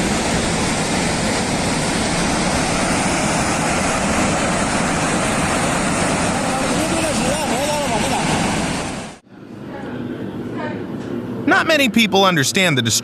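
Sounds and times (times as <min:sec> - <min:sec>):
rushing floodwater torrent: 0:00.0 - 0:09.2.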